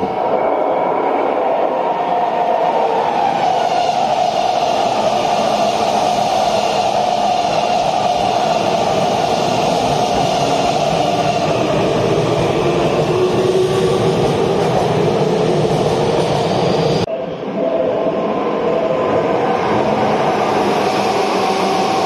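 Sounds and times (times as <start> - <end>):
train wheels rushing on rails: 0.0 - 17.1, 18.5 - 22.0
train hum: 0.0 - 22.0.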